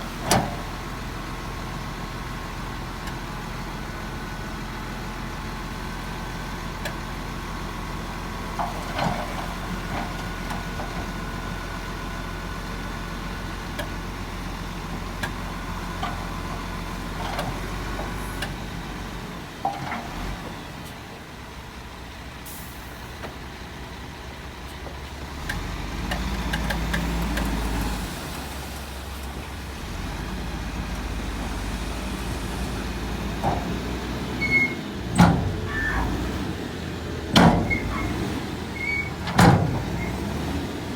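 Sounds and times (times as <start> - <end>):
heavy diesel machinery running: 0.0 - 40.9.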